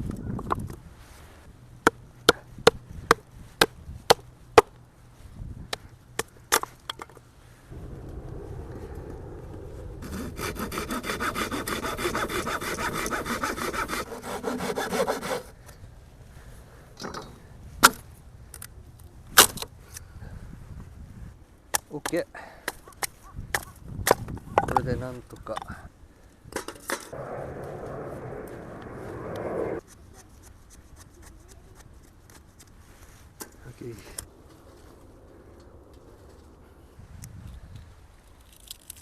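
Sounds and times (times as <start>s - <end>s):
saw cutting wood: 10.0s - 15.5s.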